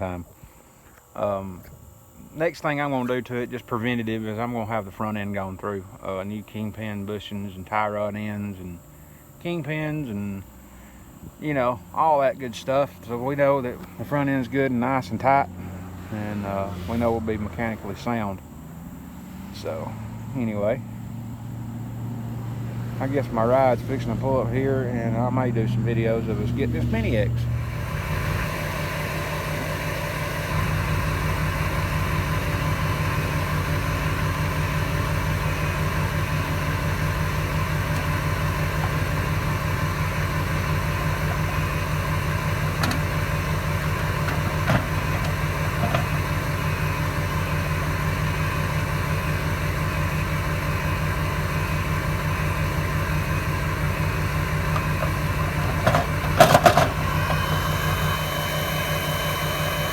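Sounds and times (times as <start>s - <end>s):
vehicle engine idling: 0.0s - 59.9s
loud clatter: 54.7s - 58.2s.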